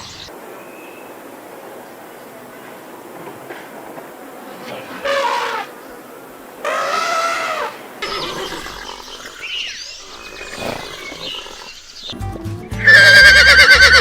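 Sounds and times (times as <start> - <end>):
horse whinnying: 4.6 - 5.7, 6.7 - 12.1, 12.8 - 14.0
mixed animal calls and chirps: 4.6 - 12.2
background music: 12.1 - 14.0.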